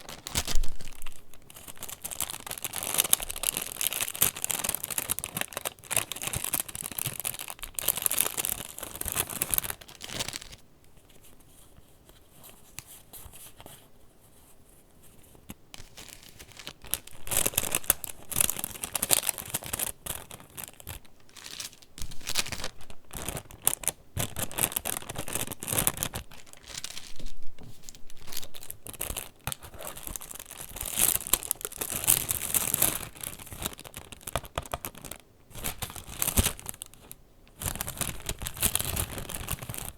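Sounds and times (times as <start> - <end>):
paper pages rustling: 0.0 - 5.4.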